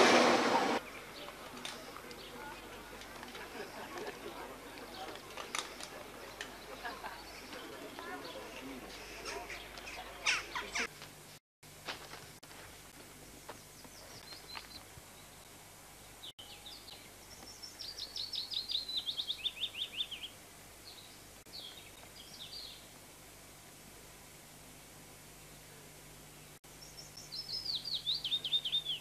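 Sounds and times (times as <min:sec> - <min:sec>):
steady background hiss: 0:00.0 - 0:29.0
songbird singing: 0:00.8 - 0:10.9, 0:13.4 - 0:22.9, 0:26.4 - 0:29.0.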